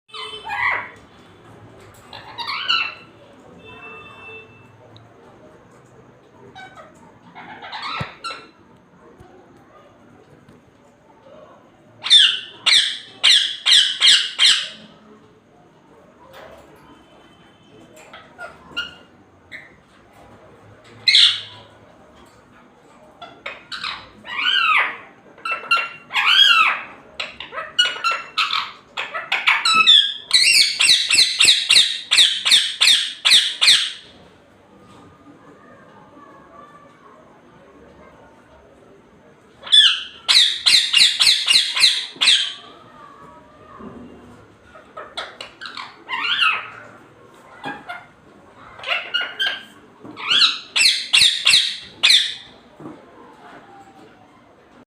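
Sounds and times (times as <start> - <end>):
parrot squawking: 0.1 - 1.0, 2.1 - 3.2, 6.5 - 8.6, 12.0 - 14.9, 21.0 - 21.7, 23.2 - 34.1, 39.6 - 42.8, 44.7 - 47.0, 47.6 - 52.6.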